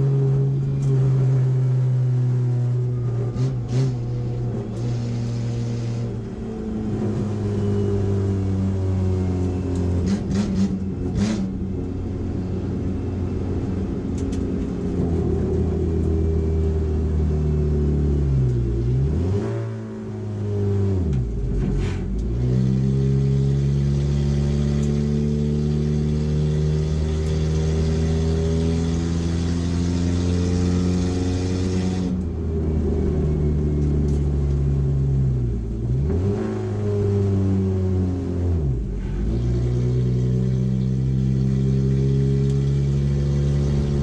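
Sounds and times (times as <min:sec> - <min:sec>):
race car engine at high revs: 0:02.9 - 0:11.9, 0:12.8 - 0:44.0.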